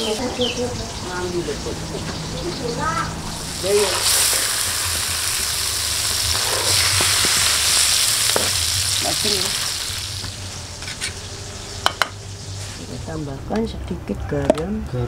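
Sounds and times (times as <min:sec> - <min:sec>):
vegetables sizzling in oil: 0:02.7 - 0:13.2.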